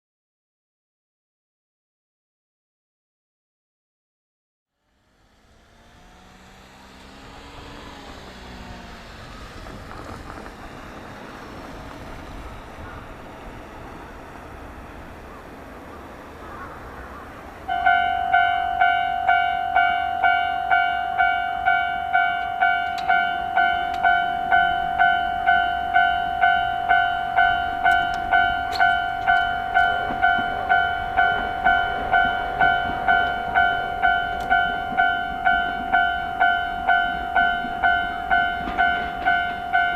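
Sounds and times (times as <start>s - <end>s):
railway rumble: 4.7s - 39.9s
level crossing alarm clanging: 9.6s - 39.9s.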